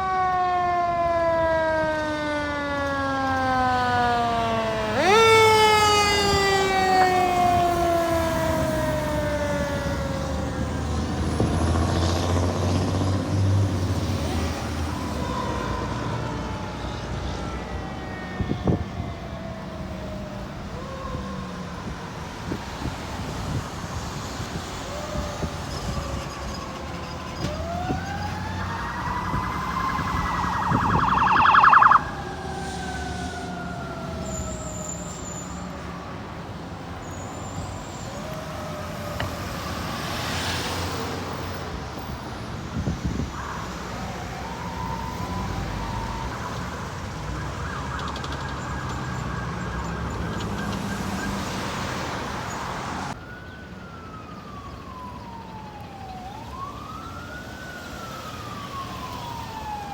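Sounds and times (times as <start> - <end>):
electronic siren wailing: 0.0 - 13.1, 24.5 - 35.7, 42.8 - 59.9
road traffic rumbling: 0.0 - 59.9.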